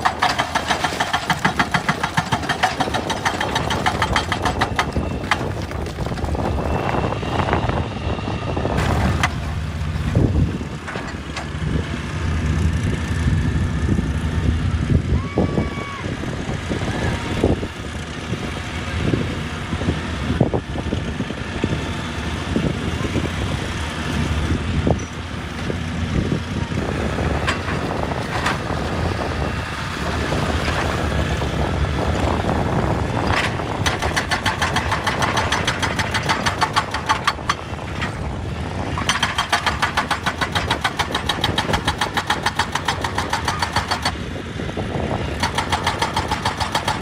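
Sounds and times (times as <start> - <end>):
sharp knocks and clanks: 0.0 - 6.3, 27.4 - 28.7, 33.2 - 38.2, 39.0 - 44.2, 45.4 - 47.0
excavator diesel engine running: 0.0 - 47.0.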